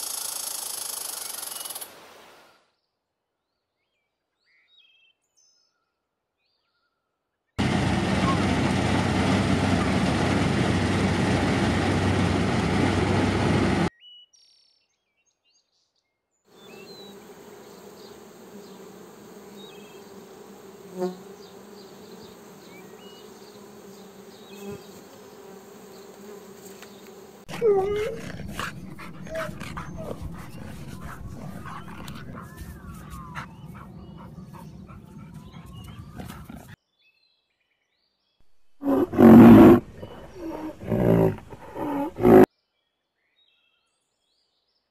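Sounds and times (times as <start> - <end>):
combine harvester running: 7.6 - 13.9
honeybees swarming: 16.6 - 36.2
sliding calls: 27.5 - 36.8, 38.8 - 42.5.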